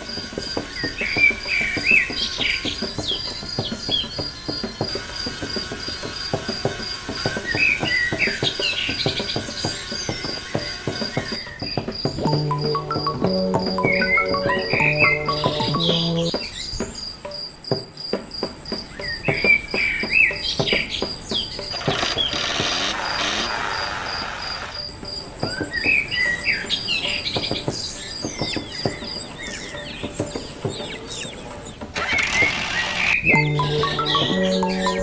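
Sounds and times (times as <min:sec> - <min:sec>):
birds chirping: 0:00.0 - 0:35.0
cricket chirping: 0:21.0 - 0:34.9
rushing hiss: 0:21.6 - 0:25.0.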